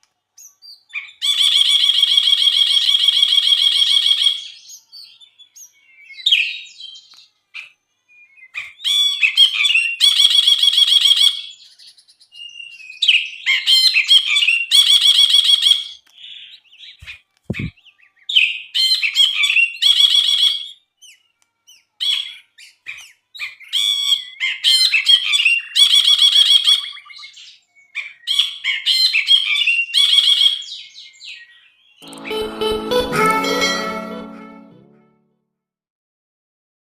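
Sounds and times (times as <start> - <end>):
low thump: 17.5 - 17.7.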